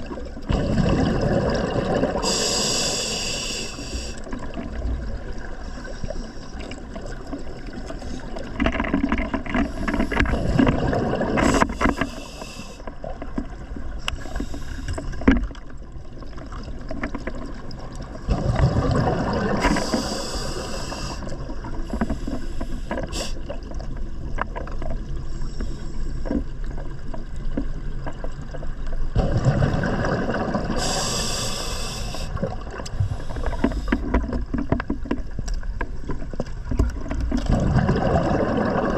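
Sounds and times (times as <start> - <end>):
bubbling exhaust: 0.5 - 2.8
regulator hiss on inhalation: 2.2 - 4.2, 11.5 - 12.8, 19.6 - 21.2, 21.9 - 23.4, 30.8 - 34.0.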